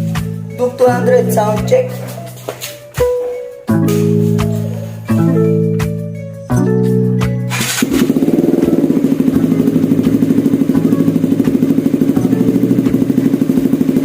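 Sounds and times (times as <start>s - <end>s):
background music: 0.0s - 14.0s
motorcycle engine idling: 7.5s - 14.0s.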